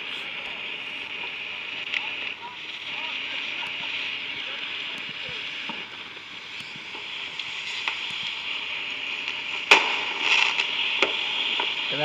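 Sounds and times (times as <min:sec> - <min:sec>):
steady hiss: 0:00.0 - 0:12.0
small firework pops: 0:04.9 - 0:11.9
loud firework bang: 0:09.7 - 0:11.7.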